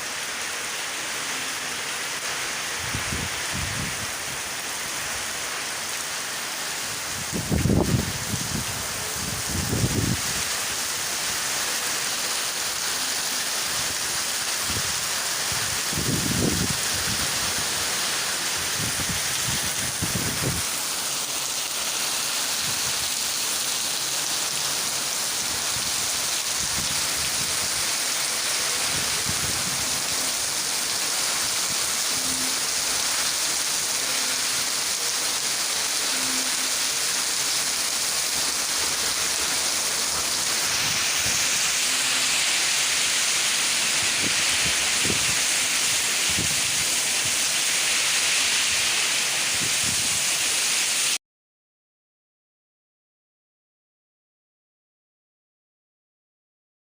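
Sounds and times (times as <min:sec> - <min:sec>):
heavy rain pouring: 0:00.0 - 0:51.2
wind gusts on microphone: 0:02.7 - 0:04.4, 0:07.0 - 0:10.6, 0:14.6 - 0:17.9, 0:18.6 - 0:20.7, 0:28.8 - 0:30.2, 0:43.9 - 0:47.5, 0:49.5 - 0:50.4.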